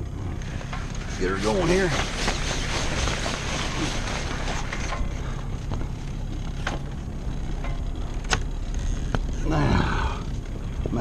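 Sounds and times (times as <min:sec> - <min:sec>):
boat engine running: 0:00.0 - 0:11.0
deck hardware clicks and knocks: 0:04.4 - 0:09.4.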